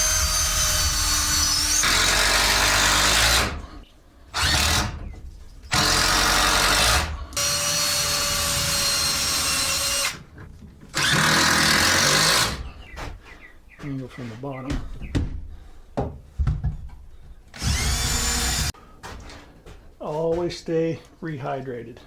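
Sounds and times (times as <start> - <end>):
power drill driving screw into wood: 0.0 - 3.7, 4.4 - 5.0, 5.7 - 10.2, 10.9 - 12.6, 17.5 - 18.8.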